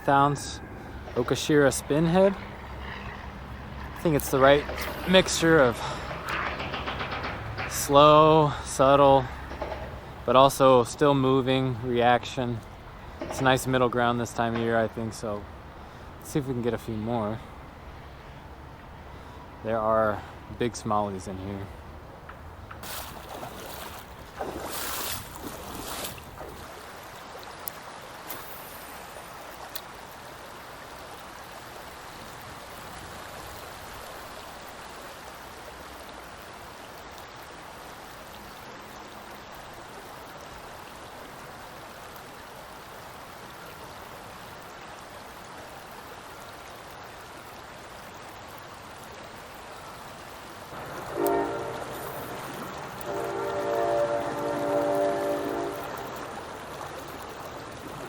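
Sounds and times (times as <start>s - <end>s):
creek water running: 0.0s - 58.0s
loud horn sounding: 50.8s - 56.3s.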